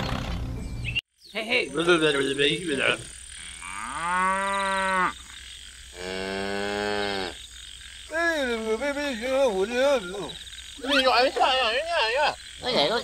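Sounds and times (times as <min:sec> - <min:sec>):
cow mooing: 0:03.4 - 0:05.3, 0:05.9 - 0:07.4.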